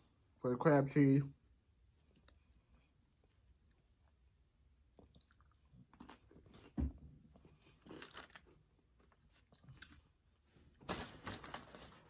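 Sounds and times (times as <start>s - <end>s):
person chewing food: 2.0s - 10.5s.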